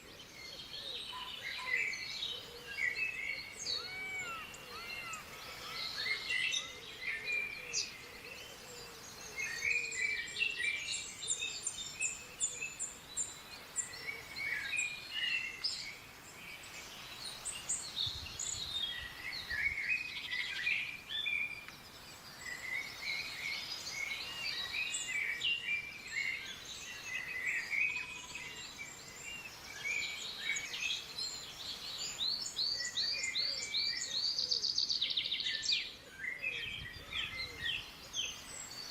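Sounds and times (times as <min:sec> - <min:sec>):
faint steady hiss: 0:00.0 - 0:38.9
small birds chirping and singing: 0:00.0 - 0:38.9.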